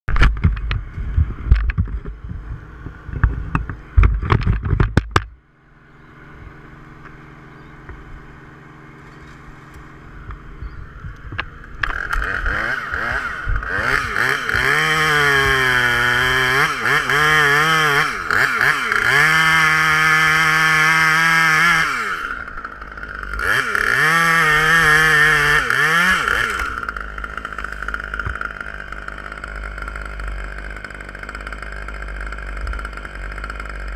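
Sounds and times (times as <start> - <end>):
low engine hum: 0.1 - 33.9
knocks and clatter: 3.1 - 5.4
chainsaw revving: 6.1 - 33.9.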